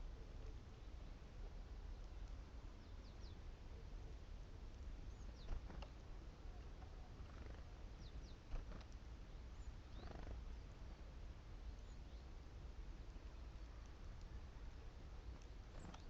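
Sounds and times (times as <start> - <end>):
small birds calling: 4.9 - 10.6, 11.6 - 16.0.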